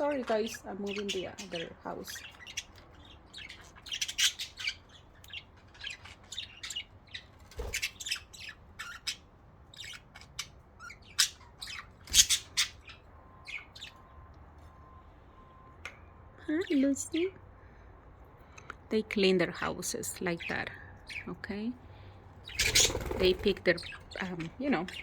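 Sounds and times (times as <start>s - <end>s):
budgerigars chattering: 0.0s - 14.0s, 20.3s - 25.0s.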